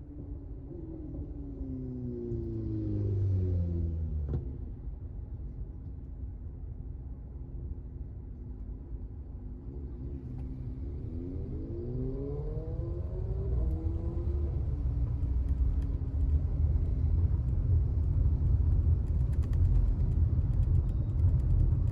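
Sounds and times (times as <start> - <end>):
road rumble: 10.0 - 21.9.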